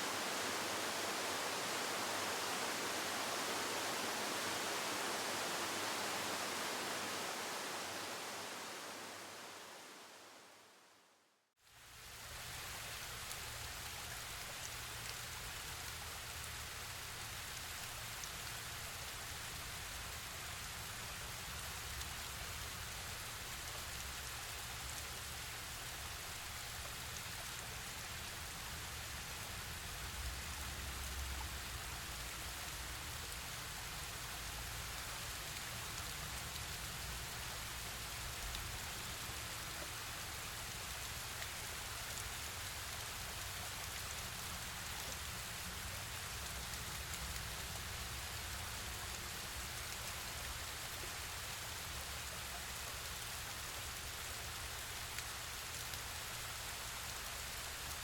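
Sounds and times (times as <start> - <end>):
waterfall rushing water: 0.0 - 11.0.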